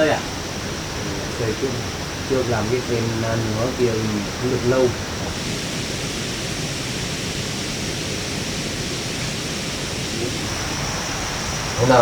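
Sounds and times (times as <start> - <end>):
faint high whine: 0.0 - 12.0
steady rushing noise: 0.0 - 12.0.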